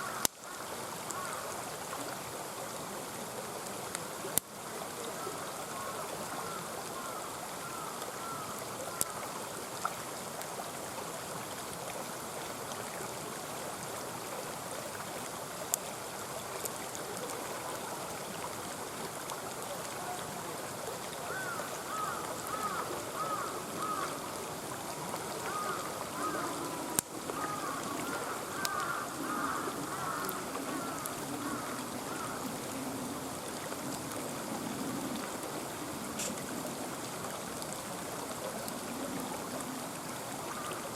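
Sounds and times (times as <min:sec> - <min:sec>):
stream flowing: 0:00.0 - 0:40.9
campfire popping: 0:25.1 - 0:32.6, 0:36.1 - 0:36.7.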